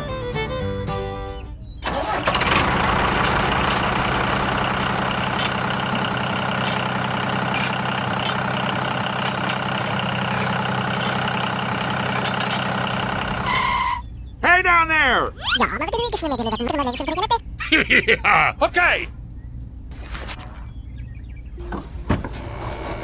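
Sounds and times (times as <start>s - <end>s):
tractor engine running: 1.8s - 14.1s.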